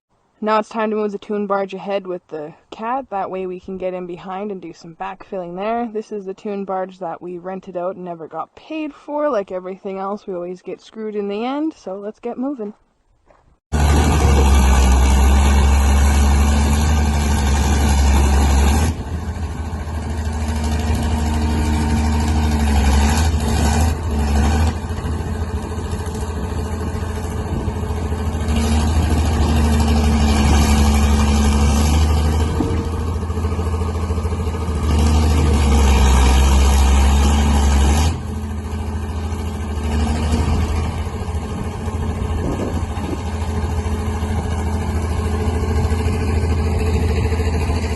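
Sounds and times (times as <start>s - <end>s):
crawler tractor engine under load: 13.7s - 47.9s.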